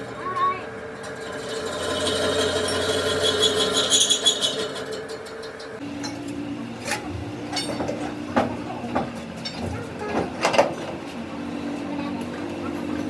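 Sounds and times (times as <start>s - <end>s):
machine hum: 0.0s - 13.0s
metal knocks and clinks: 5.6s - 11.0s.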